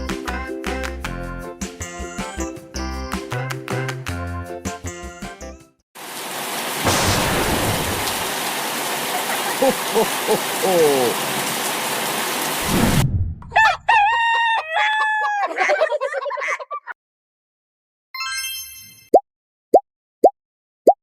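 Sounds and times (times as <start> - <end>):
heavy rain: 6.0 - 13.0
low thunder rolls: 6.9 - 8.3
rooster crowing: 13.5 - 15.7.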